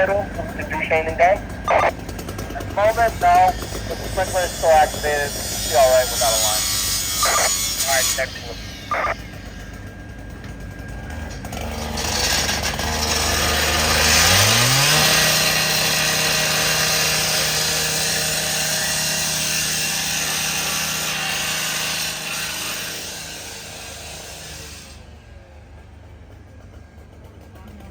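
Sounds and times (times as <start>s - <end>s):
power saw engine revving: 0.0s - 27.9s
saw cutting metal hiss: 2.8s - 9.7s, 11.9s - 25.2s.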